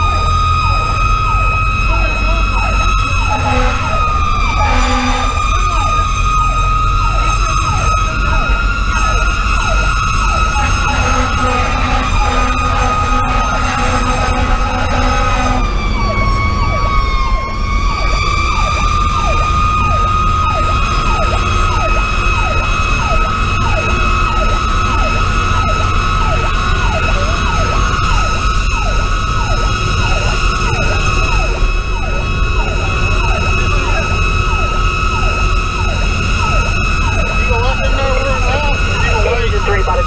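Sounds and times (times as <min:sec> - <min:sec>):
diesel engine running: 0:00.0 - 0:40.0
electronic siren yelping: 0:00.0 - 0:40.0
mechanical siren wailing: 0:00.0 - 0:40.0
air horns: 0:02.7 - 0:06.2, 0:10.3 - 0:15.9.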